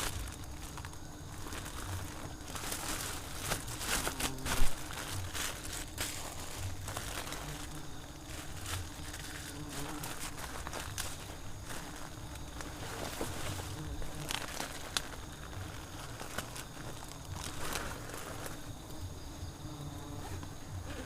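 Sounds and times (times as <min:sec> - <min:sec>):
rustling: 0:00.0 - 0:19.2
bees buzzing: 0:00.0 - 0:21.0.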